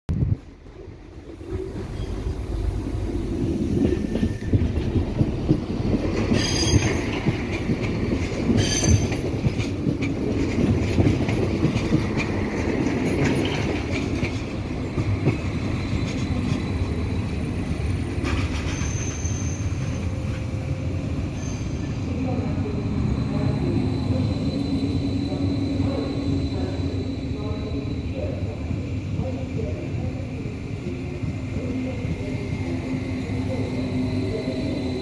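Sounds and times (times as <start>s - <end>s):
train rumbling past: 0.1s - 35.0s
high wheel squeals: 18.7s - 20.0s, 21.3s - 21.9s.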